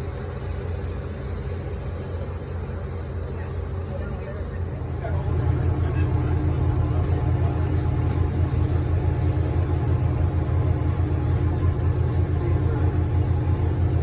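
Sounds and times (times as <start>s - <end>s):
boat engine rumbling: 4.7s - 14.0s.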